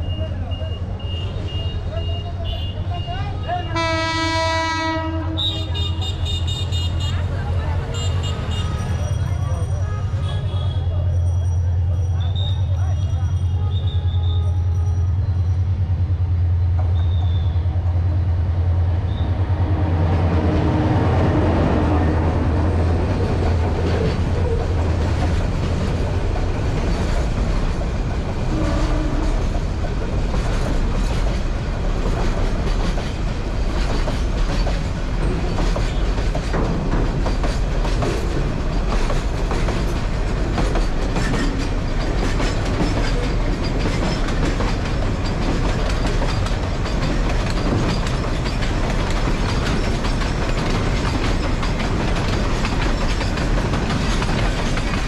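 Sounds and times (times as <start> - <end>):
train low hum: 0.0 - 55.0
wheels clacking over rail joints: 22.3 - 55.0.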